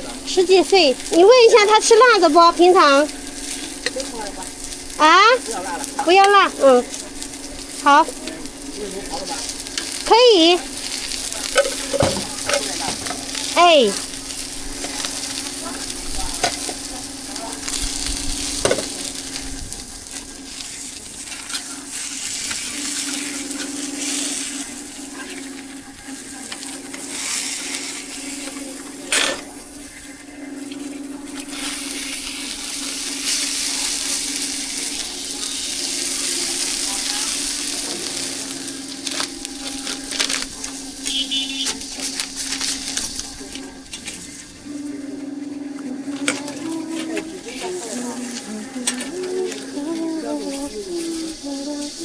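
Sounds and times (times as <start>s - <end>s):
food sizzling in hot oil: 0.0s - 45.0s, 46.1s - 52.0s
low hum: 21.7s - 52.0s.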